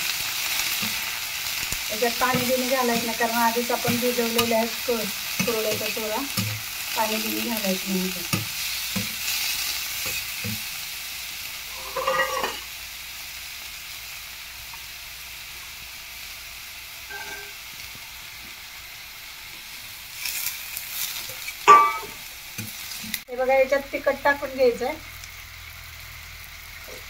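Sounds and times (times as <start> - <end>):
food sizzling in oil: 0.0 - 27.0
metal spatula scraping pan: 11.7 - 12.7, 17.1 - 17.6.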